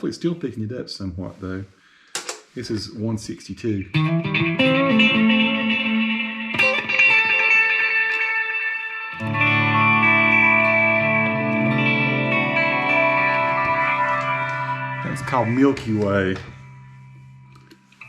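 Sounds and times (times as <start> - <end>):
electric guitar ringing chords: 3.9 - 18.0.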